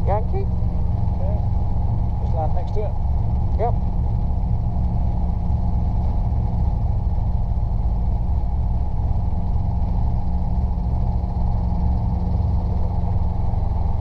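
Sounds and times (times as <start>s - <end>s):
helicopter engine and rotors drone: 0.0s - 14.0s.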